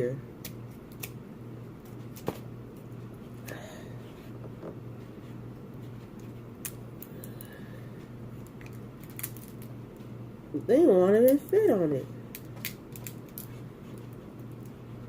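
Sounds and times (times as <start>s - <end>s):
scissors snipping shell: 0.4s - 1.2s.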